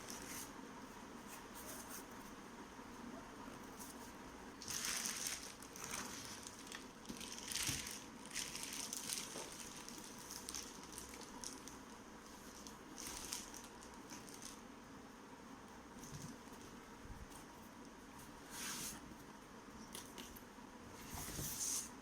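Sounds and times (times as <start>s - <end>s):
packaging crinkling and rustling: 4.6s - 14.7s.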